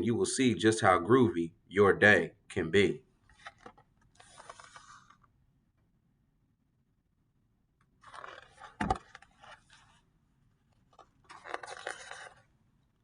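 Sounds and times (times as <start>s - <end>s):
book pages rustling: 3.2s - 5.3s, 7.9s - 12.6s.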